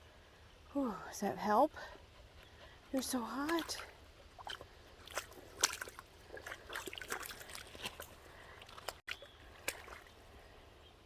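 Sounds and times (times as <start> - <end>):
water splashing and dripping: 3.0 - 10.4.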